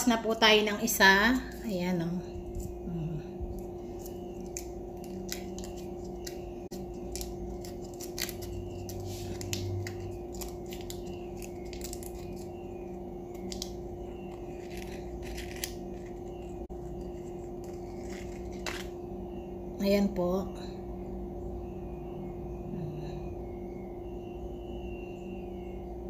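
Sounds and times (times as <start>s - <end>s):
steady low hum: 0.0s - 26.0s
muffin top crackling: 3.5s - 19.0s.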